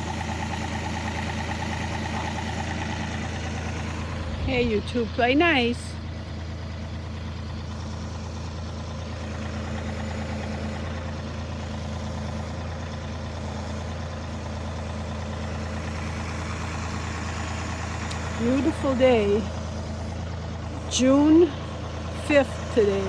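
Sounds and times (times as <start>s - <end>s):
tractor diesel engine humming: 0.0s - 23.0s.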